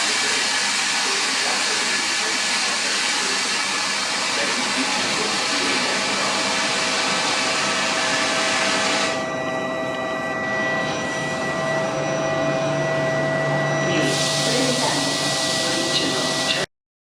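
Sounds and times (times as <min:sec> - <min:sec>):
train rushing hiss: 0:00.0 - 0:09.1, 0:14.0 - 0:16.6
train whining tones: 0:00.0 - 0:16.7.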